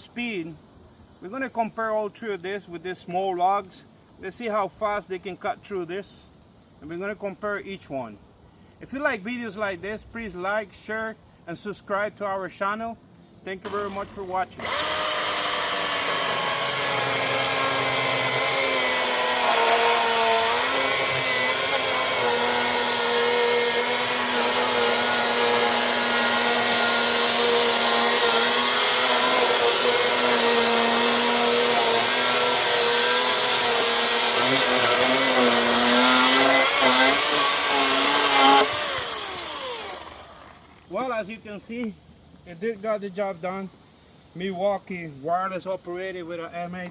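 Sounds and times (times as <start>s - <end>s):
battery chainsaw cutting log: 13.7s - 41.2s.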